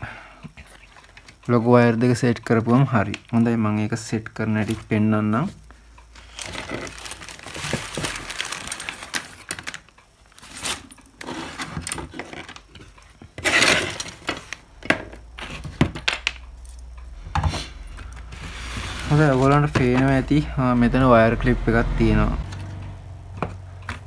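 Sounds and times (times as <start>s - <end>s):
small parts clicking and rattling: 6.0s - 11.1s.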